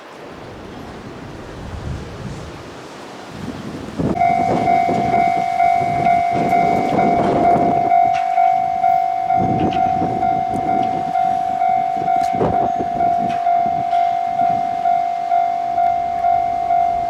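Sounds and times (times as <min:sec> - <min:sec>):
rumbling noise gusts: 0:00.2 - 0:17.0
level-crossing alarm dinging: 0:04.2 - 0:17.0.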